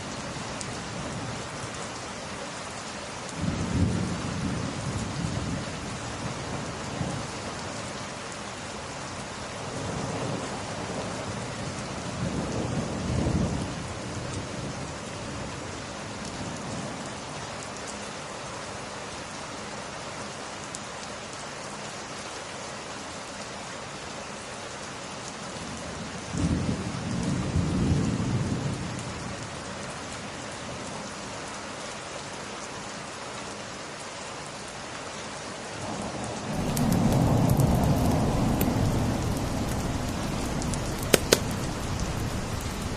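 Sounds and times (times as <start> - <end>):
steady rain: 0.0 - 42.9
low rolls of thunder: 35.8 - 42.9.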